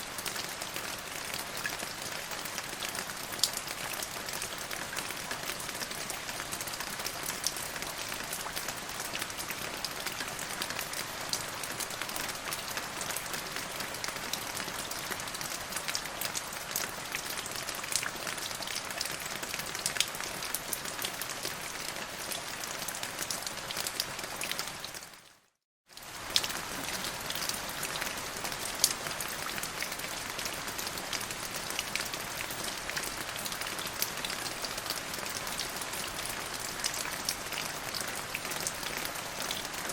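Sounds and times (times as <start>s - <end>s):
rain falling on a surface: 0.0s - 39.9s.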